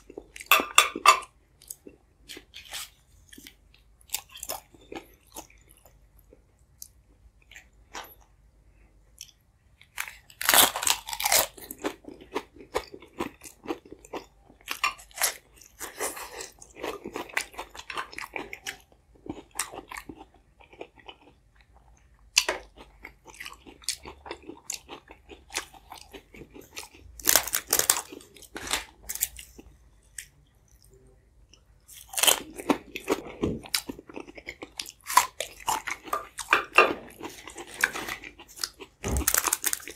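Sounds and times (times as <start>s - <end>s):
crunchy bites and chewing: 9.2s - 30.3s, 31.9s - 39.9s.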